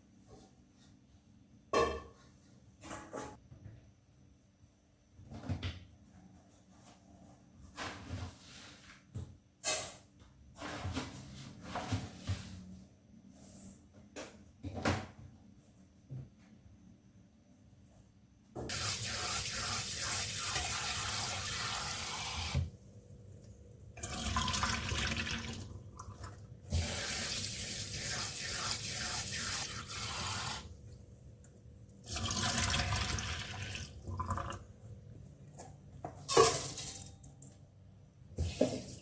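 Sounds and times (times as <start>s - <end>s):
tap water running into sink: 18.7s - 22.7s, 24.0s - 30.7s, 32.0s - 34.6s.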